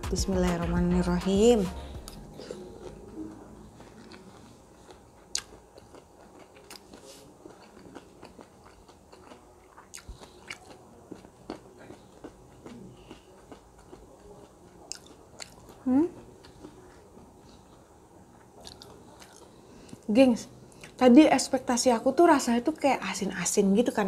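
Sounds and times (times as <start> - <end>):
soft wet chewing: 1.9 - 21.0.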